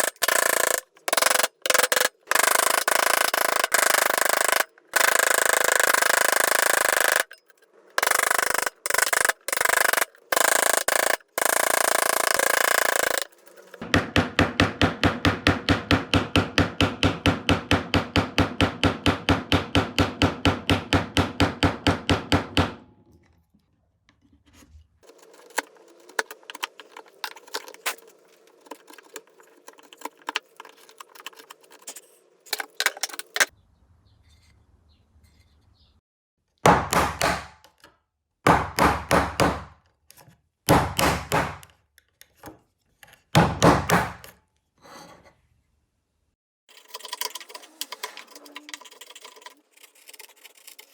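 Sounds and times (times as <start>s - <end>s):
light scrapes and ticks: 24.2s - 33.4s, 46.7s - 50.9s.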